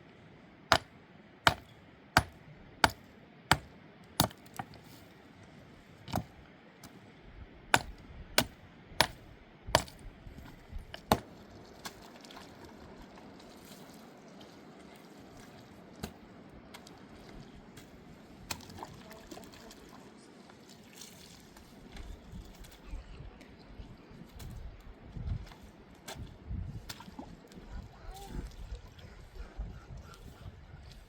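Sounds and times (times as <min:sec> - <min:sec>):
sharp knocks: 0:02.2 - 0:04.7.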